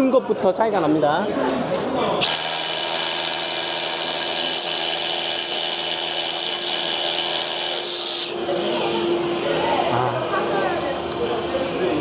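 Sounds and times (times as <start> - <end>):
power drill drilling: 2.2 - 9.0.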